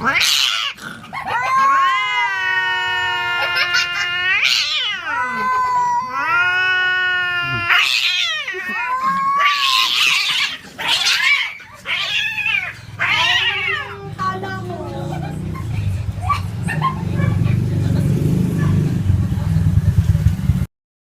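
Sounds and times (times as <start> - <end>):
cats yowling in a fight: 0.0 - 14.7.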